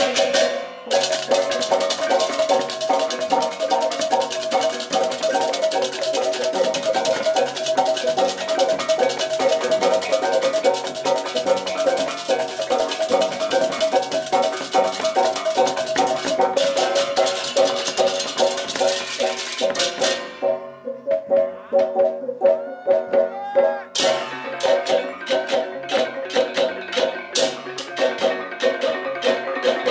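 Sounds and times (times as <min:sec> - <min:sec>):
fast clashing rattle: 0:00.0 - 0:20.2
gamelan metallic percussion: 0:00.0 - 0:29.9.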